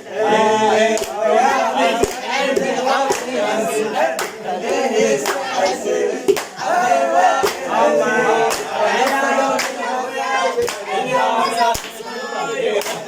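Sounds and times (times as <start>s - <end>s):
young men singing: 0.0s - 13.0s
hand clapping: 1.0s - 1.2s, 2.0s - 3.4s, 4.2s - 5.5s, 6.3s - 6.6s, 7.4s - 7.7s, 8.5s - 9.8s, 10.6s - 10.9s, 11.7s - 12.0s, 12.8s - 13.0s.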